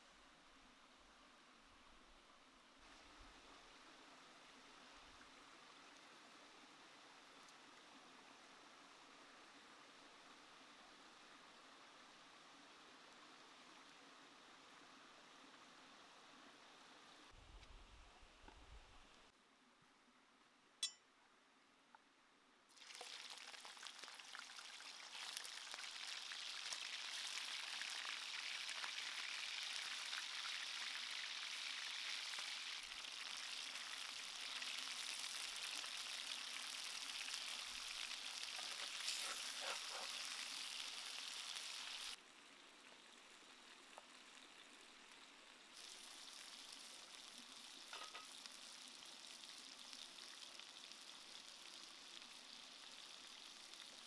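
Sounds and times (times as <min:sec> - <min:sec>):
chicken sizzling in hot oil: 0:22.7 - 0:42.2, 0:45.7 - 0:54.0.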